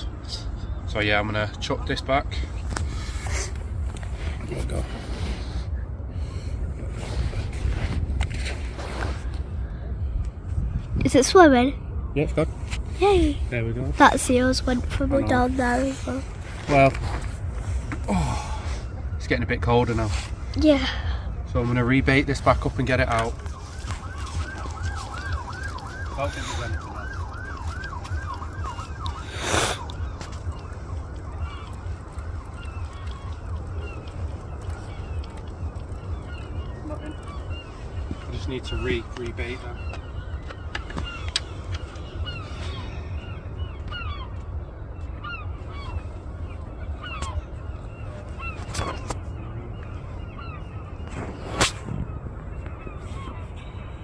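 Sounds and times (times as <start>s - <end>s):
wind rumble on microphone: 2.2s - 54.0s
flock of birds honking: 22.2s - 51.2s
emergency siren yelping: 22.5s - 44.4s.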